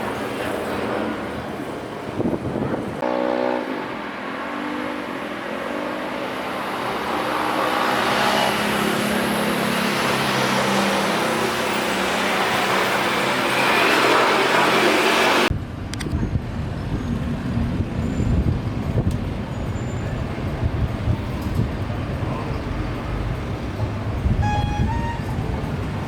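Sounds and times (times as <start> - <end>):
jet engine noise: 6.3 - 26.0.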